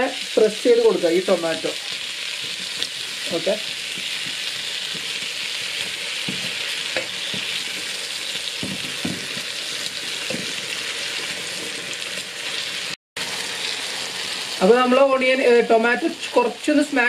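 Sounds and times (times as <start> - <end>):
vegetables sizzling in oil: 0.0 - 17.0
masher knocking on pan: 3.8 - 7.6, 8.6 - 9.6, 10.2 - 10.6.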